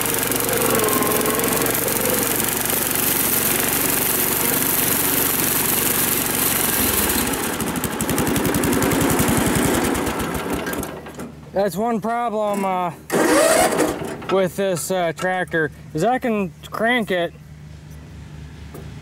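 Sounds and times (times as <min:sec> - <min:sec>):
small tractor engine chugging: 0:00.0 - 0:11.3.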